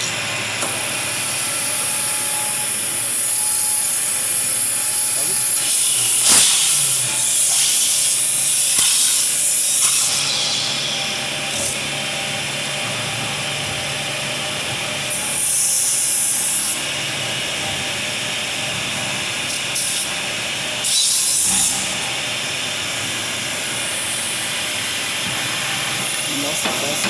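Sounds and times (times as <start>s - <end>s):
steady machine hum: 0.0s - 15.4s.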